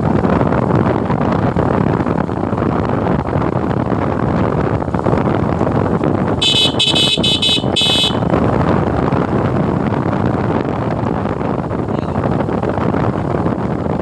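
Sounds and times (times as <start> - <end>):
wind and road noise: 0.0 - 14.0
vehicle horn toots: 6.4 - 8.3.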